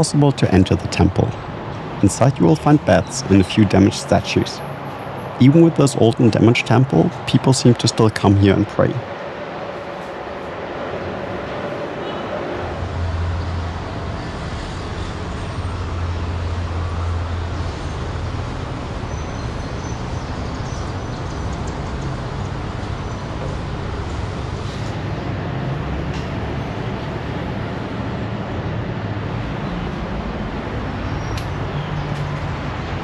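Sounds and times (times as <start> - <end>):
road traffic noise: 0.0 - 33.0
heavy vehicle engine rumble passing: 12.4 - 31.7.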